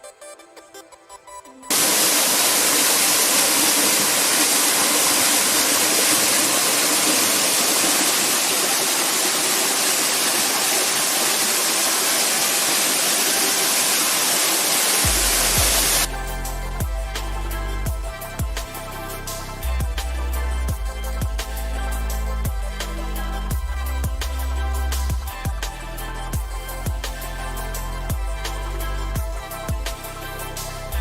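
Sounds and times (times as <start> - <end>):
rushing water: 1.7 - 25.8
music with deep bass: 15.0 - 31.0.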